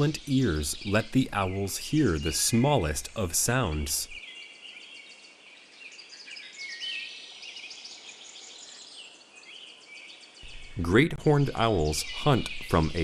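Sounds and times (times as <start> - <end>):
faint hiss: 0.0 - 4.6, 10.3 - 13.0
small birds chirping and trilling: 0.0 - 13.0.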